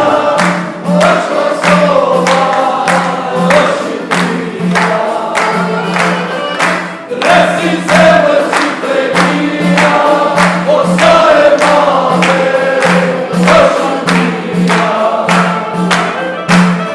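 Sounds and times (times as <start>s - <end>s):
group singing folk song: 0.0s - 16.9s
steady drum beat: 0.0s - 16.9s.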